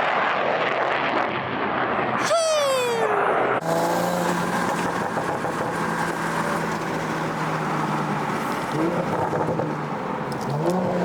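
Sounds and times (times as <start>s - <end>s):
road noise: 2.0s - 11.0s
car engine cruising: 3.4s - 11.0s.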